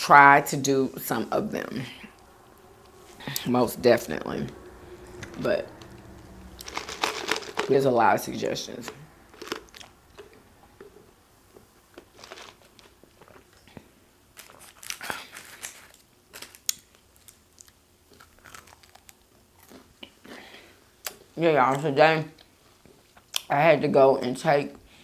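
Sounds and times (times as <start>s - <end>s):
chewing and biting food: 6.6s - 7.7s, 8.8s - 20.2s.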